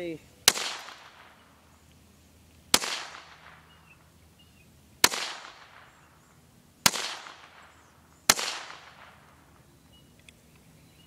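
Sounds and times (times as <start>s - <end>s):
gunshots with echo: 0.5s - 1.6s, 2.7s - 3.8s, 5.0s - 6.1s, 6.8s - 9.4s.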